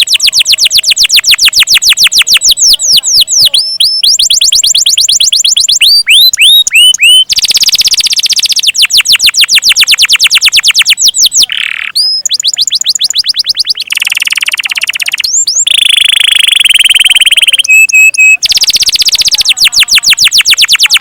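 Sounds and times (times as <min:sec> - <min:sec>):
canary singing trills: 0:00.0 - 0:21.0.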